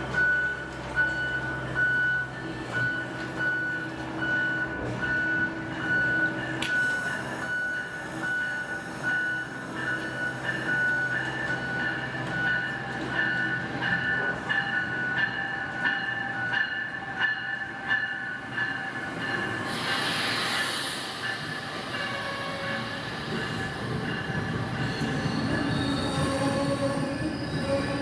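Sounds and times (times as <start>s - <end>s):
burst of hiss: 19.6s - 22.0s
high wheel squeal: 24.6s - 28.0s.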